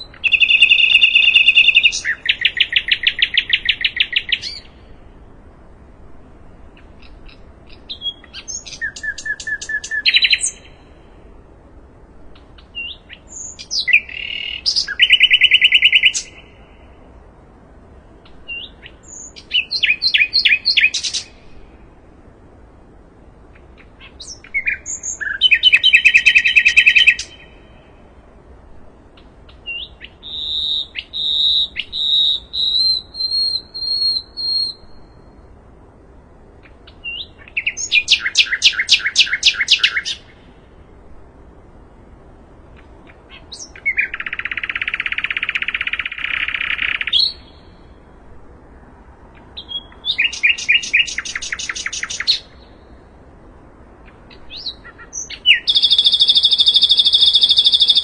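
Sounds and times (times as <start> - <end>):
nightingale singing: 0.0 - 48.3, 49.2 - 58.0.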